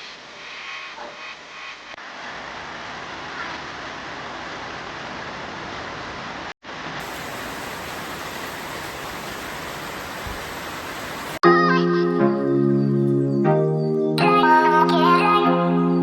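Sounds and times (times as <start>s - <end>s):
steady rain: 1.9s - 11.4s
music: 11.4s - 16.0s.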